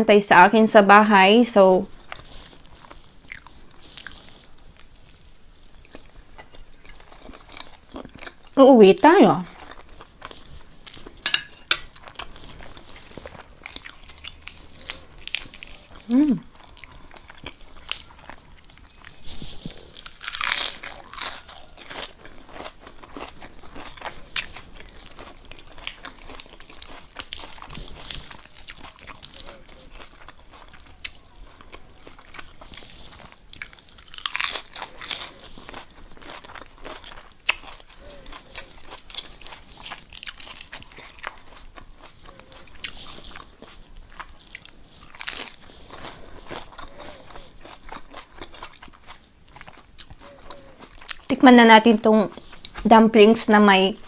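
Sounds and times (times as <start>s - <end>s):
person chewing food: 1.9s - 8.6s, 9.4s - 52.9s.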